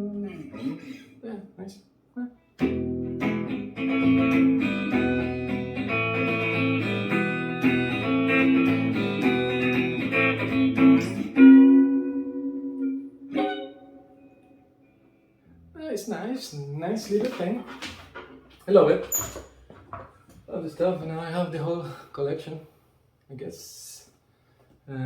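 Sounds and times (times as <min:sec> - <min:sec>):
electric guitar notes and chords: 0:02.6 - 0:15.0.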